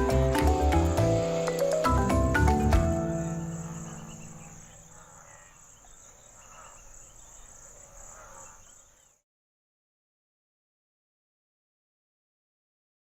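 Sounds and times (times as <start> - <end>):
background music chord: 0.0 - 4.8
crickets chirring: 0.0 - 9.2.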